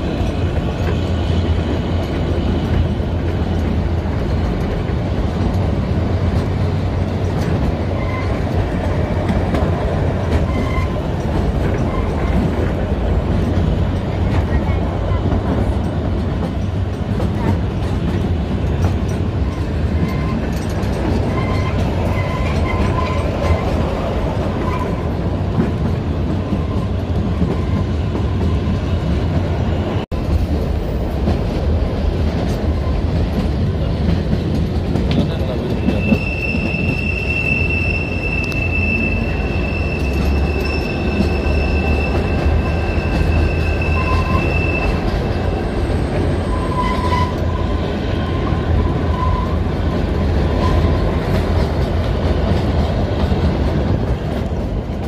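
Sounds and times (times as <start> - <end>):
train wheels rumbling on track: 0.0 - 55.0
high wheel squeal: 7.9 - 8.6, 10.4 - 11.1, 21.3 - 23.8, 24.5 - 25.1, 35.6 - 49.7.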